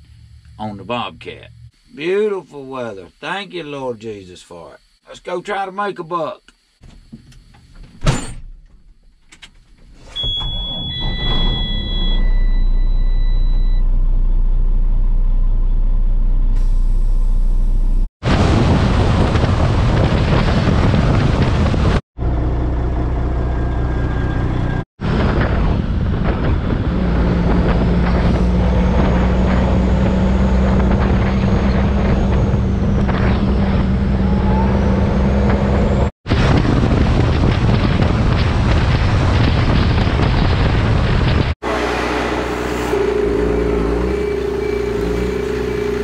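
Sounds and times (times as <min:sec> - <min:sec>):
vehicle engine and road noise: 0:00.0 - 0:01.8, 0:11.0 - 0:18.1, 0:19.4 - 0:46.0
wind on microphone: 0:18.2 - 0:22.0, 0:25.0 - 0:41.6.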